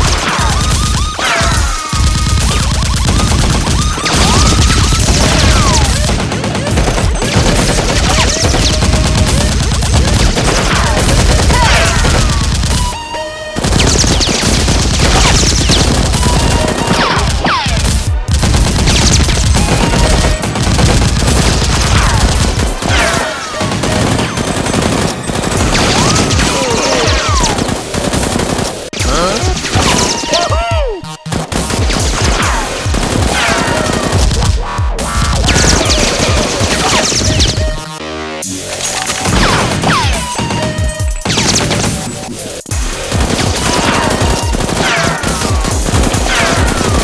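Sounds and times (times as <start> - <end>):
rapid automatic gunfire: 0.0 - 30.3, 31.3 - 47.0
falling whistles: 0.4 - 6.0.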